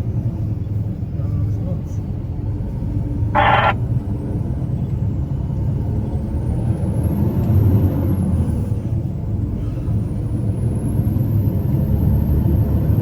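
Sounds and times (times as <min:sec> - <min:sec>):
truck engine rumbling: 0:03.4 - 0:03.8.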